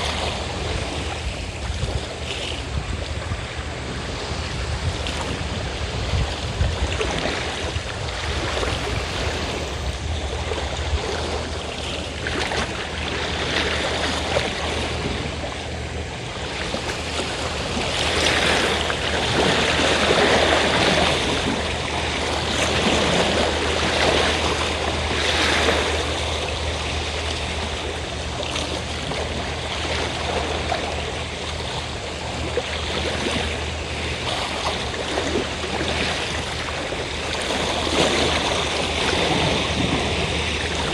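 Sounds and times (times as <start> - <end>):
sea waves washing ashore: 0.0 - 40.9
steady low hum: 0.0 - 40.9.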